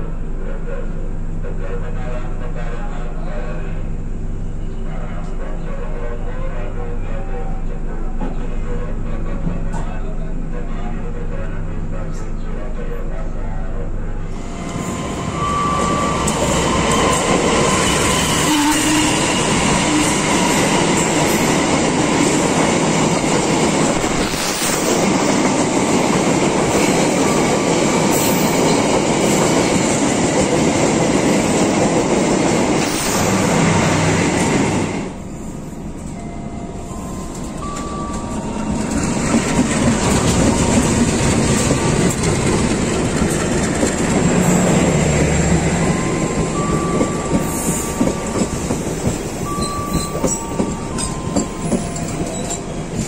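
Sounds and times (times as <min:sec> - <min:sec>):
train wheels running on rails: 0:14.4 - 0:53.0.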